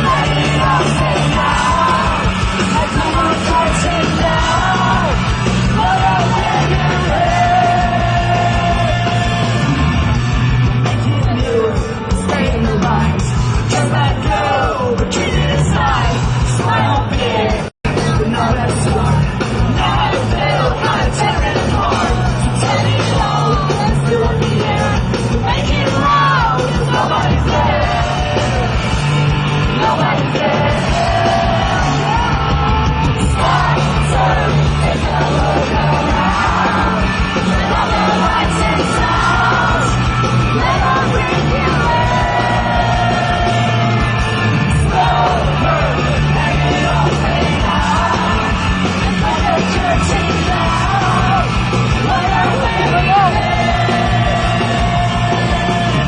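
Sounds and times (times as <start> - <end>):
person singing: 0.0 - 9.7, 29.8 - 56.0
live rock band playing: 0.0 - 56.0.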